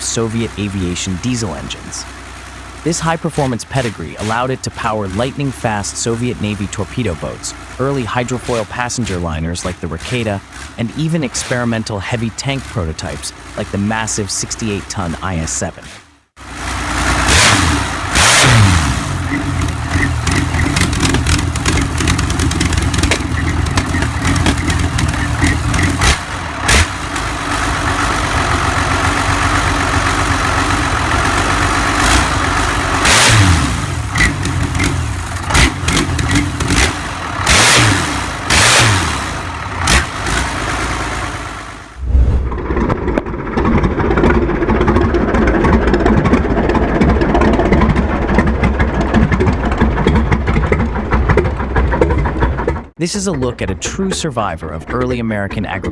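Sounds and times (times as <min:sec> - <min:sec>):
diesel engine revving: 0:00.0 - 0:55.9
different engine running: 0:00.0 - 0:55.9.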